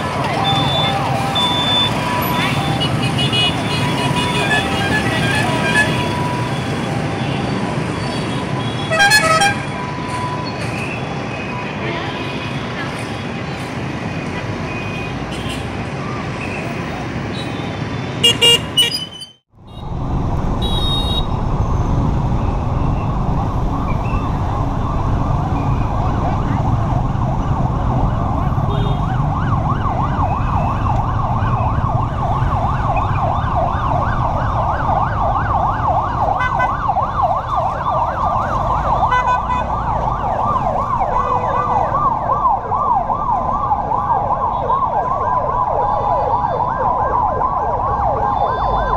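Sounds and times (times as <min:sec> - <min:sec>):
fire engine siren: 0:00.0 - 0:17.2, 0:19.3 - 0:48.9
road traffic noise: 0:00.0 - 0:48.9.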